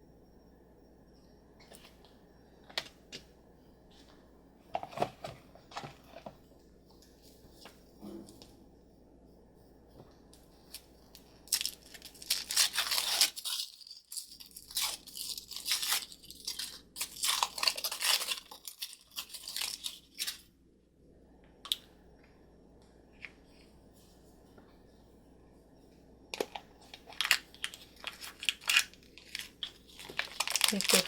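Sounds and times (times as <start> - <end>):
wrapper crinkling and tearing: 11.4 - 20.5, 26.4 - 31.0.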